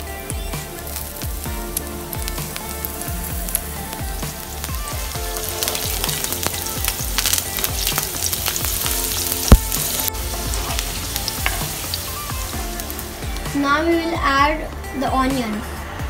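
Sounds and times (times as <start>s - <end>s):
chillies sizzling in hot oil: 0.0s - 13.8s
wooden spoon stirring: 0.9s - 13.5s.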